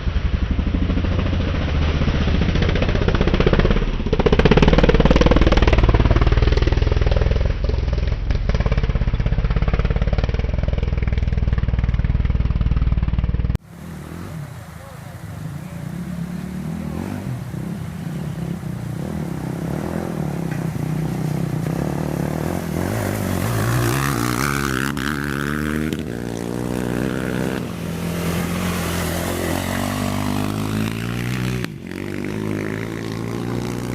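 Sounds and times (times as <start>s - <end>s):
racing engines revving: 13.7s - 33.9s.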